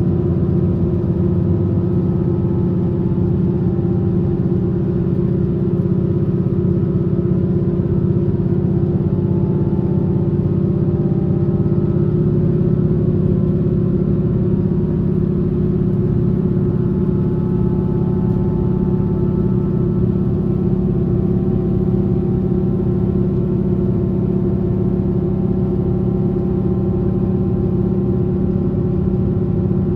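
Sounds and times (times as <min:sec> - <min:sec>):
train rumble inside carriage: 0:00.0 - 0:29.9
train drive hum: 0:12.4 - 0:29.9.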